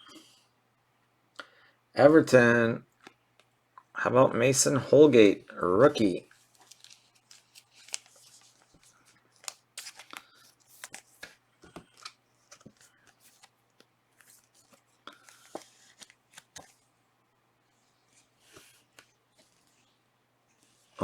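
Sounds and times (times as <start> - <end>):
wrapper rustling: 6.3 - 16.8
trading cards flipping: 6.3 - 16.9.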